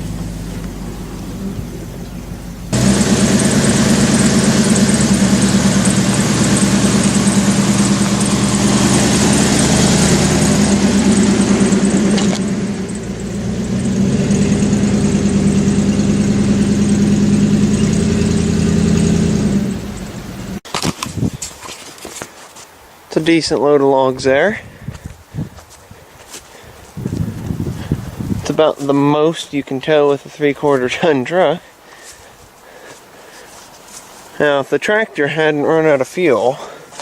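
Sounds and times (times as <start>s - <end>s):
pickup truck engine running: 0.0s - 20.6s.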